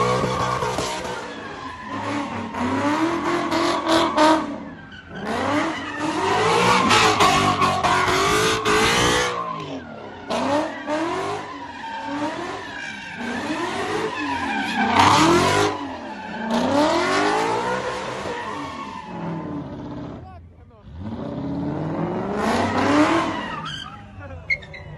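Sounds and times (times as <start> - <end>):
car engine revving hard: 0.0 - 4.6, 5.2 - 9.4, 14.8 - 15.8, 20.8 - 23.5
tires squealing and skidding: 0.0 - 24.9.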